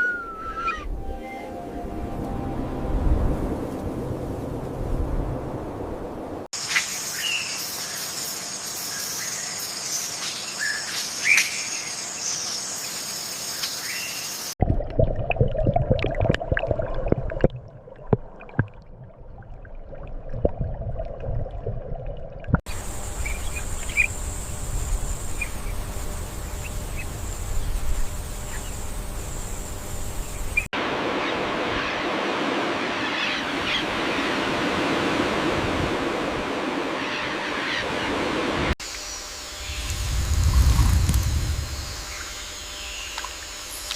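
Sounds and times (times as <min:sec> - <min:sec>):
low rumble: 0:00.9 - 0:06.5, 0:39.6 - 0:42.4
steady high buzz: 0:22.7 - 0:30.7, 0:38.8 - 0:43.9
steady rushing hiss: 0:38.4 - 0:43.9.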